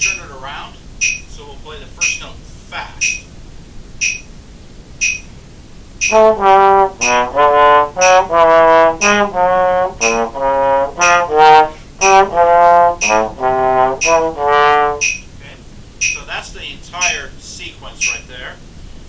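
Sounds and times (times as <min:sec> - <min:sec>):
metronome clicking: 0:00.0 - 0:00.3, 0:01.0 - 0:01.3, 0:03.0 - 0:03.3, 0:04.0 - 0:04.3, 0:05.0 - 0:05.4, 0:06.0 - 0:15.3, 0:16.0 - 0:16.3, 0:18.0 - 0:18.3
trombone playing: 0:06.0 - 0:15.2.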